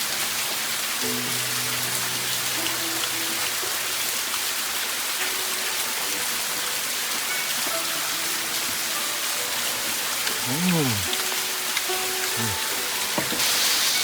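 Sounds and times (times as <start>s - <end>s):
hiss of falling water: 0.0s - 14.0s.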